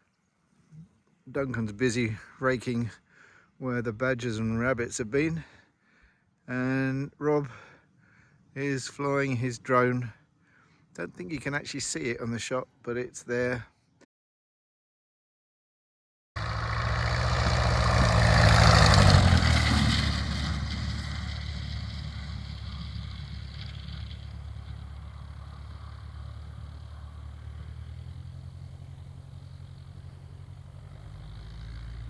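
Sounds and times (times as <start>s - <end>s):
engine passing by: 16.4s - 32.0s.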